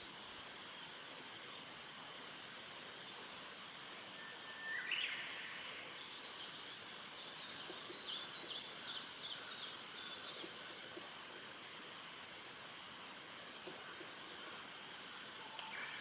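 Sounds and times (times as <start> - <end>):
high background hiss: 0.0 - 16.0.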